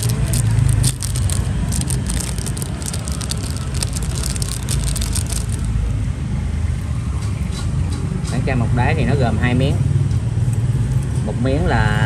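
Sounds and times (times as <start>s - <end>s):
objects clicking and rustling: 0.0s - 5.7s
road traffic rumble: 0.0s - 12.0s.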